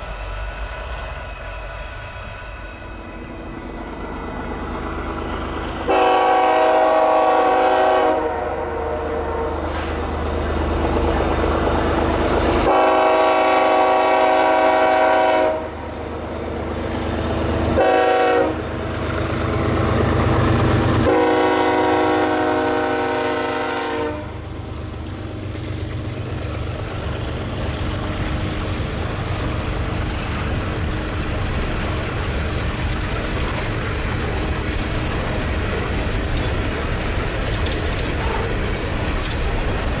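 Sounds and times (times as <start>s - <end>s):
train wheel noise: 0.0s - 40.0s
locomotive air horn blasts: 5.8s - 9.9s, 12.6s - 15.9s, 17.7s - 18.7s, 21.0s - 24.4s.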